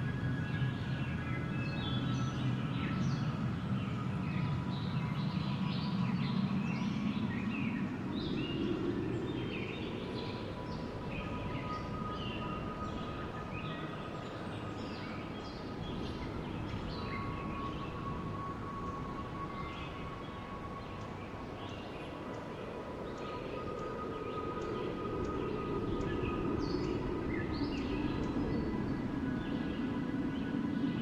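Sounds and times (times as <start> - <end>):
wind blowing: 15.6 - 31.0.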